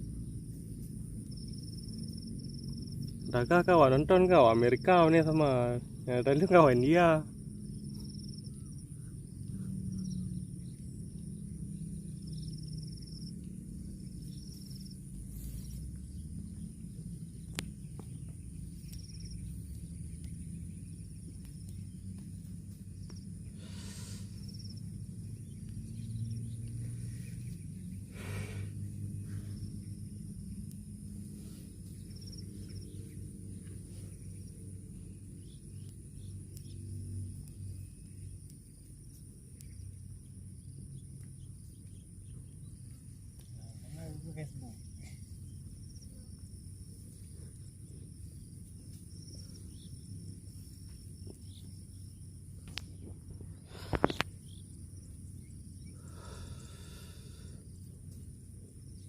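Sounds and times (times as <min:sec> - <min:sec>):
high insect drone: 0:00.0 - 0:59.0
low rumbling noise: 0:00.0 - 0:59.0
high insect buzz: 0:11.4 - 0:26.5, 0:47.6 - 0:59.0.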